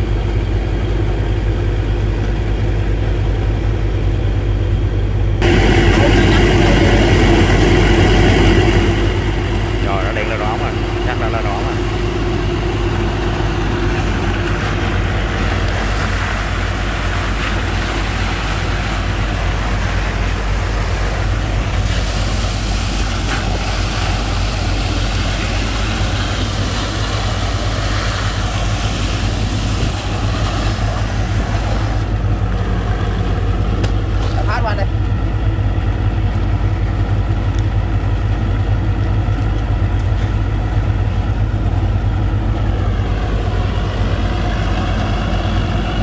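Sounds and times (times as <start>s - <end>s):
boat engine and pump running: 0.0s - 46.0s
rushing hiss of water slurry: 5.4s - 35.2s.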